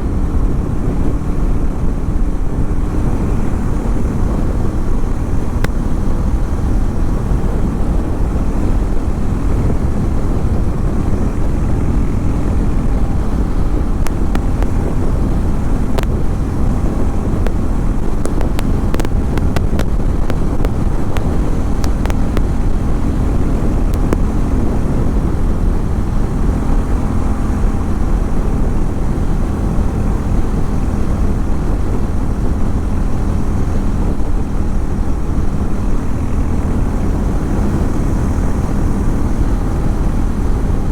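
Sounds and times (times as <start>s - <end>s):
motorcycle engine running steadily: 0.0s - 40.9s
small ticks: 18.2s - 22.6s.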